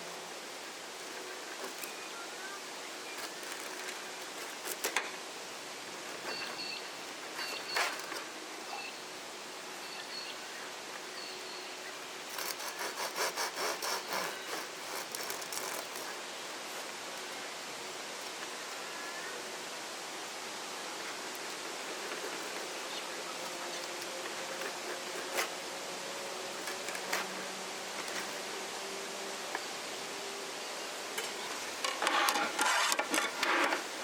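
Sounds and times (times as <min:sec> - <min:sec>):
steady hiss: 0:00.0 - 0:34.0
rapid rhythmic scraping strokes: 0:12.2 - 0:16.3.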